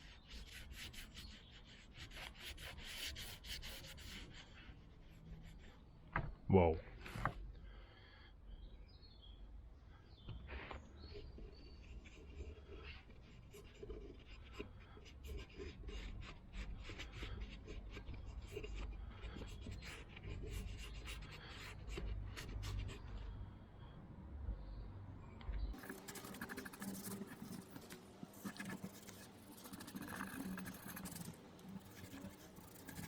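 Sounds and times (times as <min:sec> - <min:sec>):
scratchy rubbing on metal: 0:11.0 - 0:21.5, 0:25.8 - 0:33.0.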